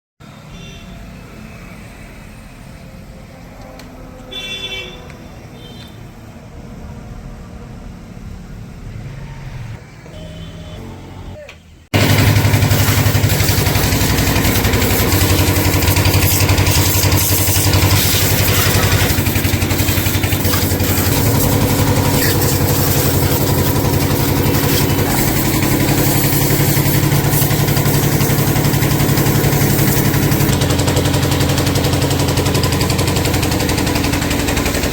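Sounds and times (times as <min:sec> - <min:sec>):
background traffic: 0:00.2 - 0:28.2
vehicle horn: 0:00.4 - 0:01.2, 0:04.3 - 0:06.0, 0:10.1 - 0:11.8
loud steady motor: 0:12.0 - 0:34.9.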